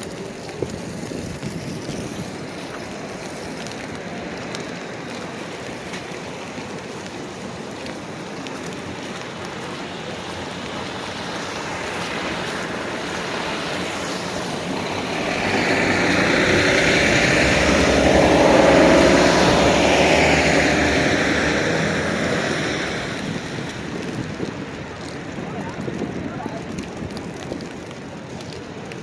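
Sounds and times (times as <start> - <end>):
large vehicle passing: 11.2 - 24.4.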